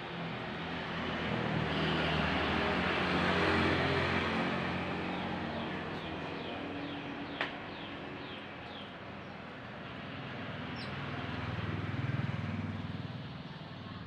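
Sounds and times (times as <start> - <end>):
small bird chirping: 10.8 - 11.0.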